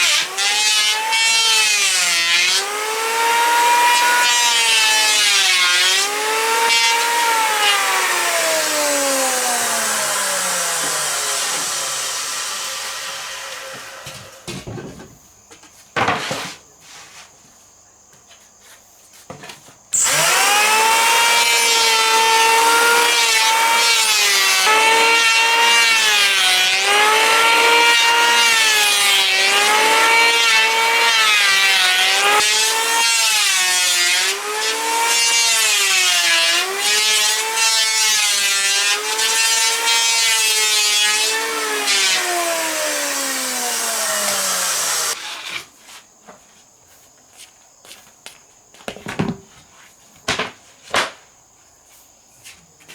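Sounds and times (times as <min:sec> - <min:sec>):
power tool cutting wood: 0:00.0 - 0:14.6, 0:20.0 - 0:45.7.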